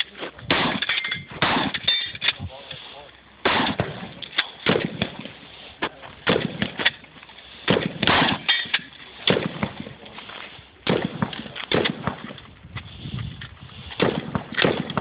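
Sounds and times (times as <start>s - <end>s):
shotgun shots with echo: 0.5s - 1.8s, 3.4s - 5.3s, 6.2s - 6.8s, 7.7s - 8.5s, 9.2s - 9.9s, 10.8s - 12.4s, 14.0s - 15.0s.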